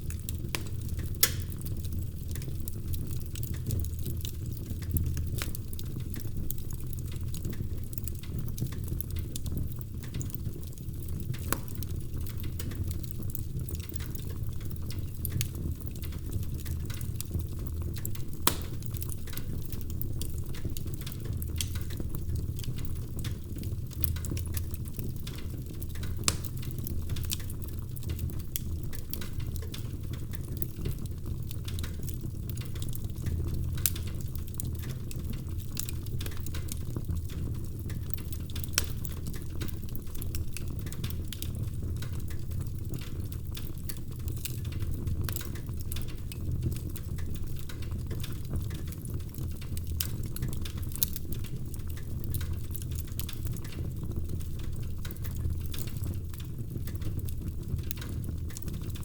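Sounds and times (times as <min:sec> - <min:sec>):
sharp pops from fire: 0:00.0 - 0:06.6, 0:11.0 - 0:37.0, 0:37.9 - 0:42.2
wood fire crackling: 0:00.0 - 0:59.0.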